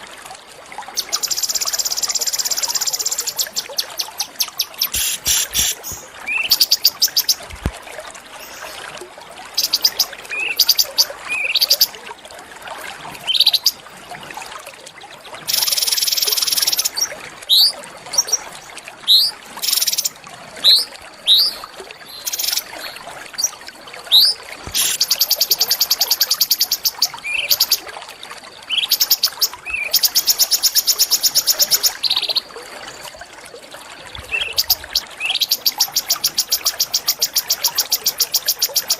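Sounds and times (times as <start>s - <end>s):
songbirds whistling: 1.0s - 7.4s.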